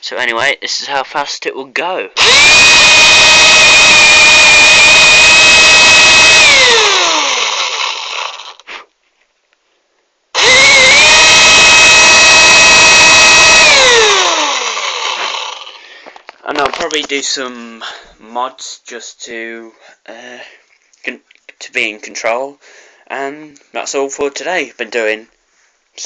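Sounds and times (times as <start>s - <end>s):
cordless drill motor whining: 2.2s - 8.6s, 10.4s - 15.8s.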